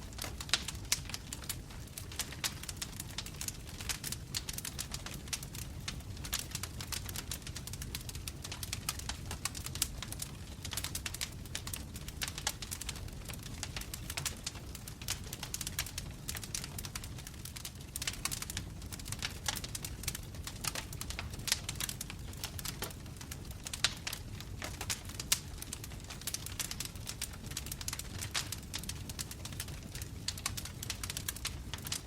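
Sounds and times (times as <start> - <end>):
low rumble of flames: 0.0 - 32.0
wood fire crackling and popping: 0.0 - 32.0.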